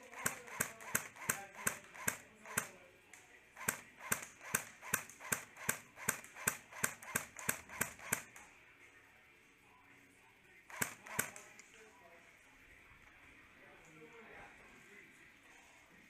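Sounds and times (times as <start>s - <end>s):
airsoft gun shots: 0.0s - 2.8s, 3.6s - 8.4s, 10.7s - 11.5s.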